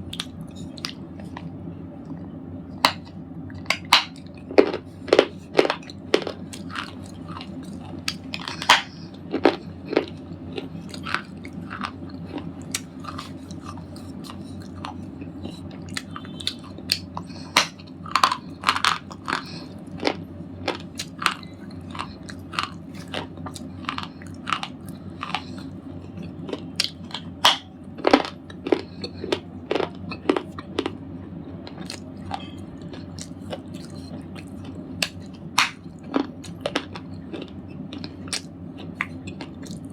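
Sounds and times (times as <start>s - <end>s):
slate ball crunching and cracking: 3.7s - 15.0s, 16.6s - 25.6s, 35.0s - 38.5s.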